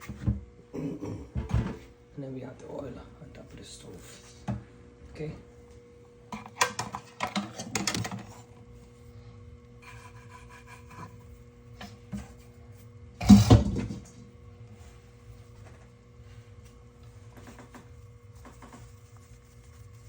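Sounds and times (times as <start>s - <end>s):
rolling pin working dough: 9.8s - 20.0s.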